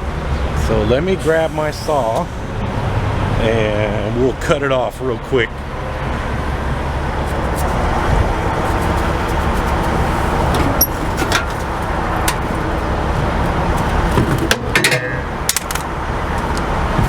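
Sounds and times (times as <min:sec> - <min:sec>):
idling trucks and road traffic: 0:00.0 - 0:17.0
sharp clicks and knocks: 0:13.8 - 0:16.7.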